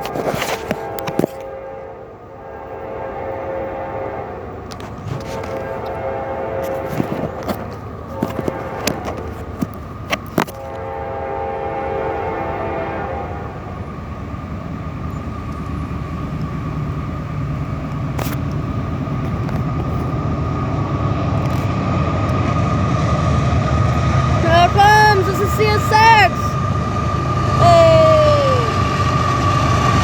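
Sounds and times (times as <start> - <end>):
diesel engine and rolling train: 0.0 - 30.0
locomotive air horn blasts: 0.1 - 9.4, 10.6 - 13.8
steady high tone: 27.3 - 29.5.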